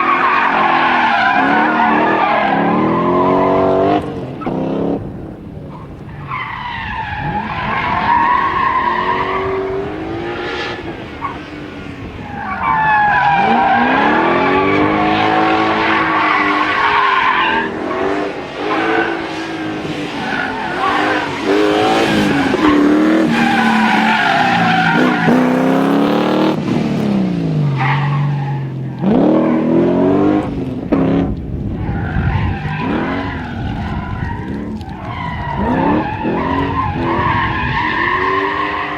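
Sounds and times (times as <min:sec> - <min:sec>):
car engine revving: 0:00.0 - 0:38.9
tyres squealing: 0:12.3 - 0:26.0.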